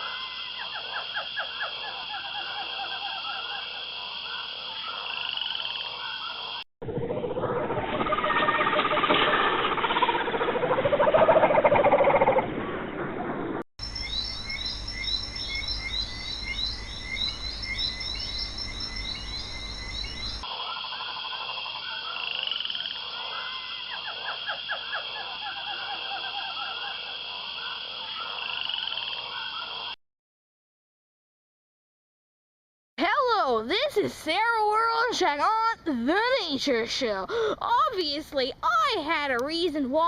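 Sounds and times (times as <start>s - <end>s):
frogs croaking: 0.0s - 12.4s, 13.8s - 30.0s.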